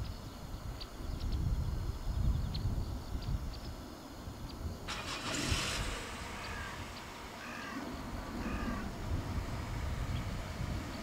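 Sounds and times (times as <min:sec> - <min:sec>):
low outdoor rumble: 0:00.0 - 0:11.0
distant bird calls: 0:02.0 - 0:11.0
burst of hiss: 0:04.9 - 0:11.0.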